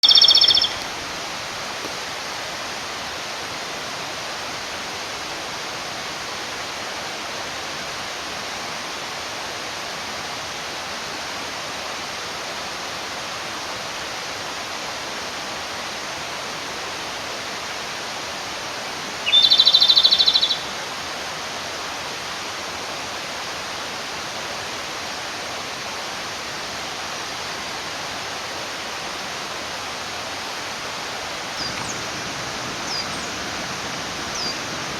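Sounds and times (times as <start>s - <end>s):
bird singing a rattling trill: 0.0s - 0.9s, 19.2s - 20.7s, 31.6s - 32.2s, 32.8s - 33.4s, 34.3s - 34.7s
mountain stream rushing: 0.0s - 34.9s.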